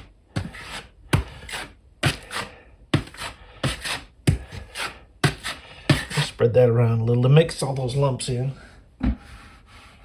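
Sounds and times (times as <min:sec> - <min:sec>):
taping knife scraping compound: 0:00.0 - 0:06.4.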